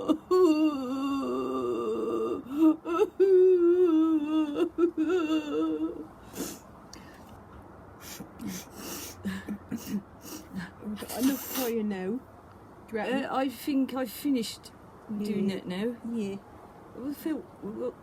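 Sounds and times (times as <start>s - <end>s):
women wailing sobs: 0.0s - 6.6s
breathy sobs and gasps: 0.0s - 7.3s, 8.0s - 11.7s.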